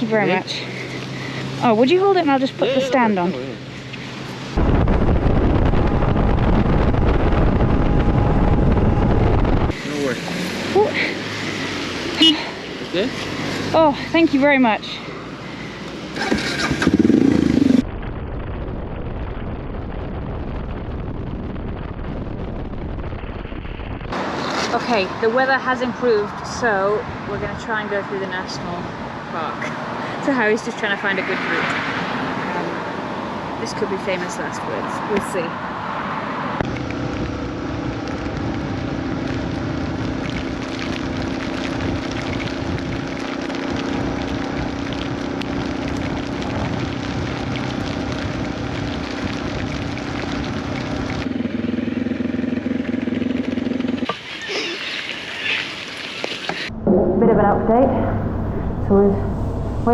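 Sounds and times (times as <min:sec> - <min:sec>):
engine and road drone: 0:00.0 - 0:59.9
motorcycle engine starting: 0:16.0 - 0:17.9, 0:50.7 - 0:54.6
rain drops ticking: 0:36.6 - 0:51.8
steady low hum: 0:56.7 - 0:59.9.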